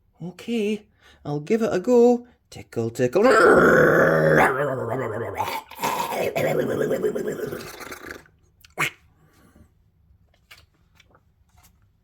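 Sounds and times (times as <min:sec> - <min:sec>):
person making wordless character noises: 0:03.2 - 0:09.0.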